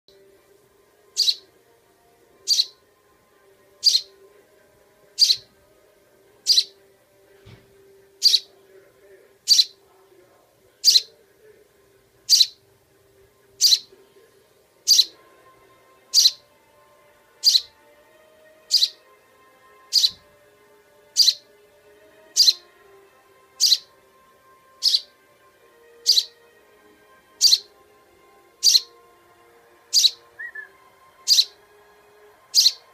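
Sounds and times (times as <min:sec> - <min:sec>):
fledgling bird cheeping: 0:01.2 - 0:01.4, 0:02.5 - 0:02.8, 0:03.8 - 0:04.1, 0:05.2 - 0:05.5, 0:06.4 - 0:06.8, 0:08.2 - 0:08.5, 0:09.5 - 0:09.8, 0:12.3 - 0:12.6, 0:13.6 - 0:13.9, 0:14.9 - 0:15.1, 0:16.1 - 0:16.4, 0:17.4 - 0:17.7, 0:18.7 - 0:19.0, 0:19.9 - 0:20.2, 0:21.2 - 0:21.4, 0:22.4 - 0:22.6, 0:23.6 - 0:23.9, 0:24.8 - 0:25.1, 0:26.0 - 0:26.4, 0:27.4 - 0:27.7, 0:28.6 - 0:28.9, 0:29.9 - 0:30.7, 0:31.3 - 0:31.6, 0:32.5 - 0:32.8.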